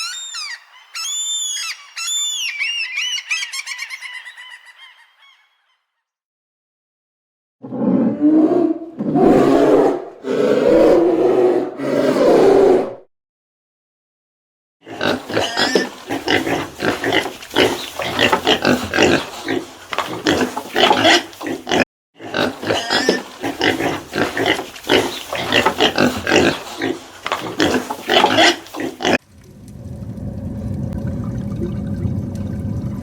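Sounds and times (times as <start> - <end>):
pigs grunting: 14.8 - 29.2.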